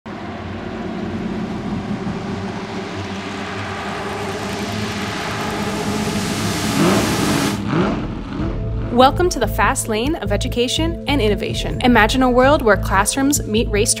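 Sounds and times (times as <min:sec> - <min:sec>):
car engine running and revving: 0:00.0 - 0:11.2.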